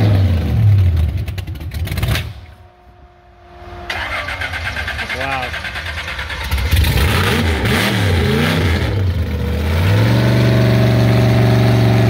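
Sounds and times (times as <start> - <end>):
supercharged engine revving: 3.9 - 12.0.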